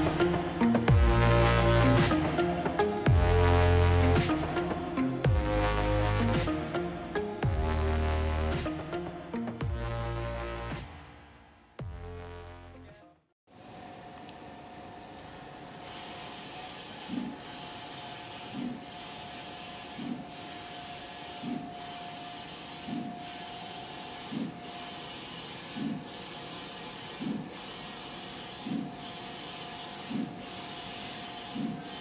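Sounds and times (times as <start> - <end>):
constant printer whine: 15.8 - 32.0
printer carriage whirring: 16.3 - 32.0.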